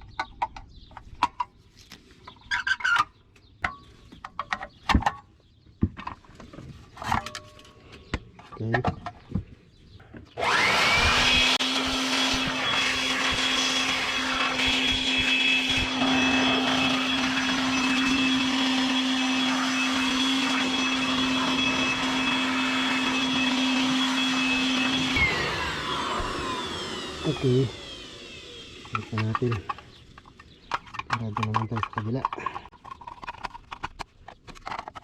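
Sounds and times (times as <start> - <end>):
electric blower whining: 10.4 - 31.1.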